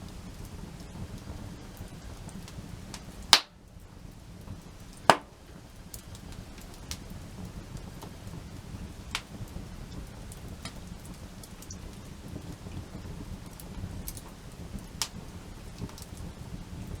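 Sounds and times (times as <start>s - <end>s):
campfire crackling: 0.0s - 17.0s
loud sharp fire pops: 2.9s - 3.6s, 5.0s - 6.1s.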